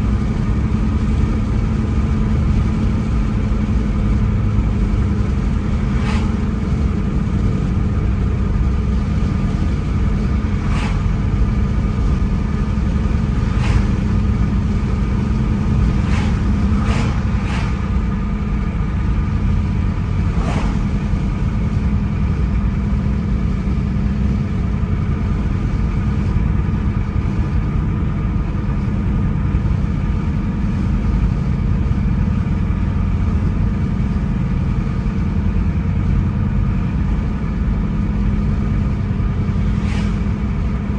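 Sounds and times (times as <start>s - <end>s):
car engine and tyre rumble: 0.0s - 40.9s.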